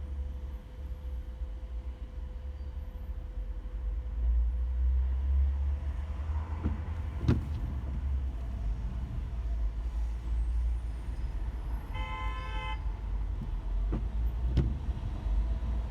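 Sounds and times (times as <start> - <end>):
car engine and road rumble: 0.0 - 15.9
short sharp knocks: 6.6 - 8.1.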